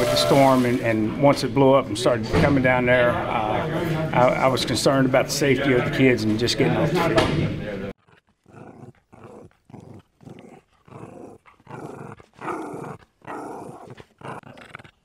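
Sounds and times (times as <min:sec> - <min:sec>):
dog barking and growling: 0:08.0 - 0:15.0.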